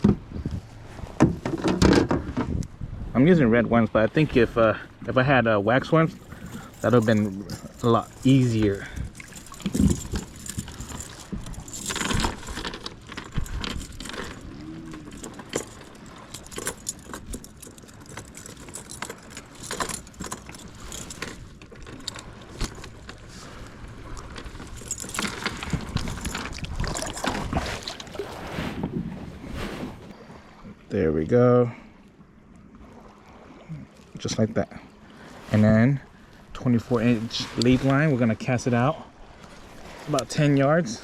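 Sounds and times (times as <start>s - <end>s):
fishing tackle clicks and rustles: 5.7s - 28.5s.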